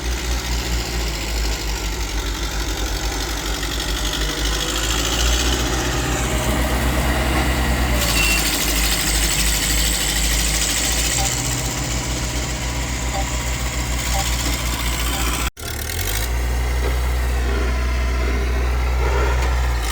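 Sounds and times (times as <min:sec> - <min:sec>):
heavy diesel engine running: 0:00.0 - 0:19.9.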